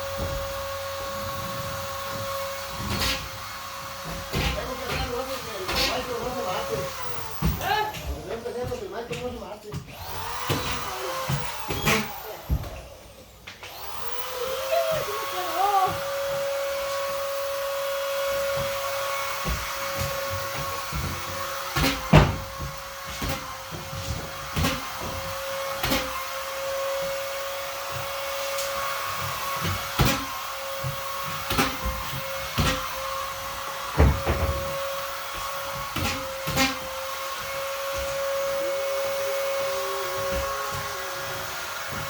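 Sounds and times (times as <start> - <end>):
vacuum cleaner running: 0.0 - 42.0
knocks and bumps: 29.1 - 38.4.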